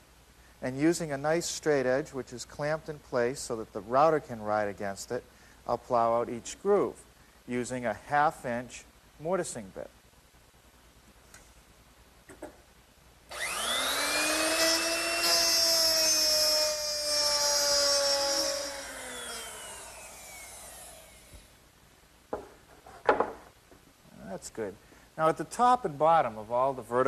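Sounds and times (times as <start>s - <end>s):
wood router cutting wood: 13.3s - 21.5s
knocks: 22.3s - 23.5s.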